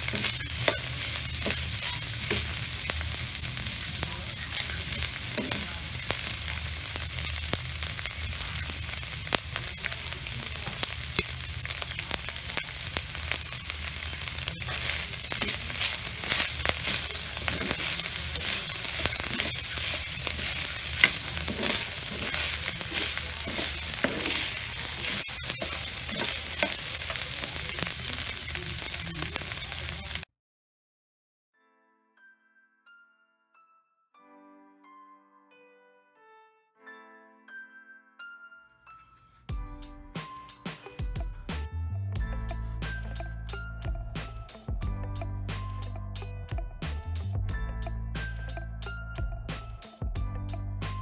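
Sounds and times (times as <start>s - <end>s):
metal spoon scraping a pan: 0.0s - 30.2s
meat sizzling in a wok: 0.0s - 30.3s.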